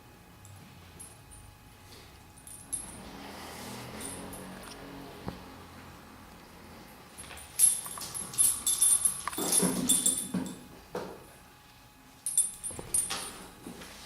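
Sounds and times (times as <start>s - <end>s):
puppies clattering and scuffling: 7.4s - 10.7s.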